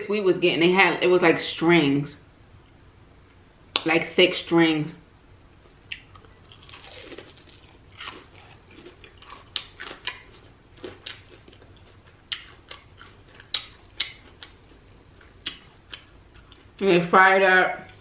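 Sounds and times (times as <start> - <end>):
crunchy chewing: 5.6 - 16.8.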